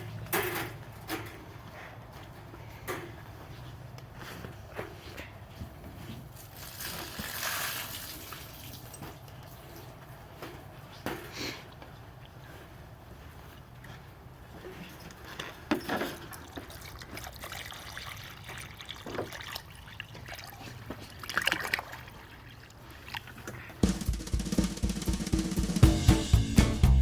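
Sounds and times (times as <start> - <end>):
handling knocks and rustles: 0.0 - 7.4
water sloshing and trickling: 6.2 - 10.0, 15.1 - 23.8
drum-kit music: 23.8 - 27.0.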